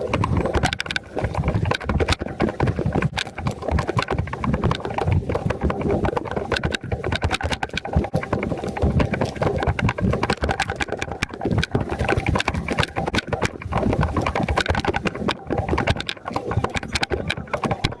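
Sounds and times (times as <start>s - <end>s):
motorcycle engine clattering: 0.0s - 18.0s.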